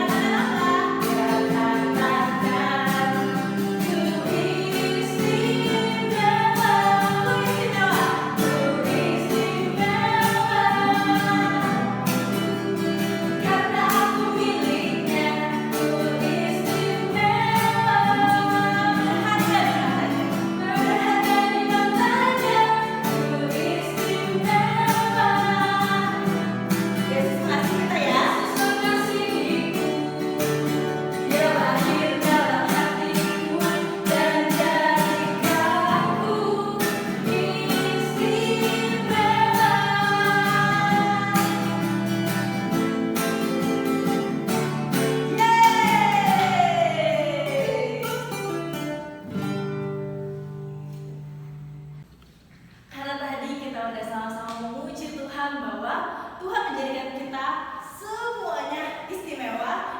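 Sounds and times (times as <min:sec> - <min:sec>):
children's worship singing: 0:00.0 - 0:43.0, 0:45.0 - 0:48.5.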